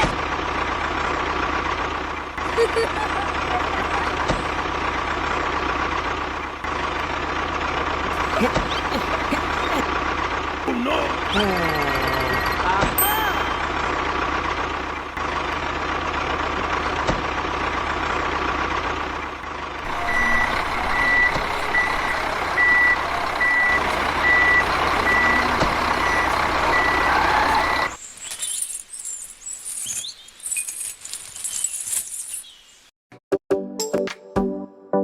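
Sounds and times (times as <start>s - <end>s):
truck engine running: 0.0s - 28.0s
reversing alarm beeping: 19.8s - 28.0s.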